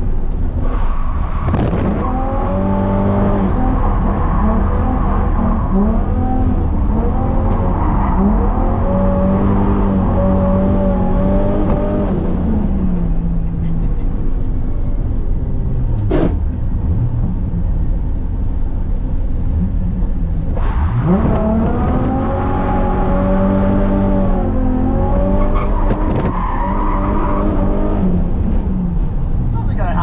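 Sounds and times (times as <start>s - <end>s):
car engine revving: 0.5s - 14.0s, 19.6s - 30.0s.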